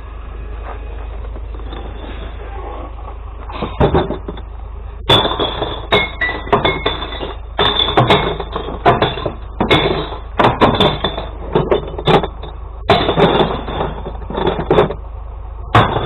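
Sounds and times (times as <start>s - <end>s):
truck engine idling: 0.0s - 16.0s
glass bottles clattering and smashing: 3.6s - 4.4s, 5.1s - 15.0s, 15.8s - 16.0s
knocks: 5.1s - 15.0s, 15.7s - 16.0s.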